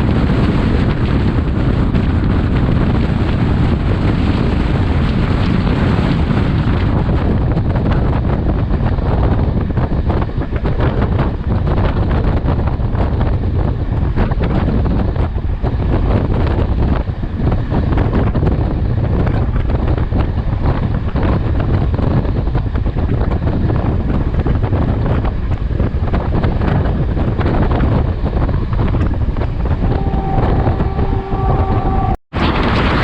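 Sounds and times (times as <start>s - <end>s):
train low rumble: 0.0s - 33.0s
wind buffeting microphone: 0.0s - 33.0s
faint multi-pitch tone: 29.9s - 32.2s.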